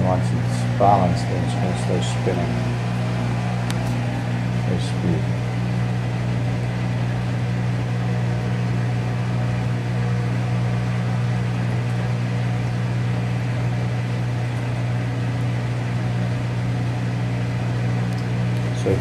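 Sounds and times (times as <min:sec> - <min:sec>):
washer drain pump humming: 0:00.0 - 0:19.0.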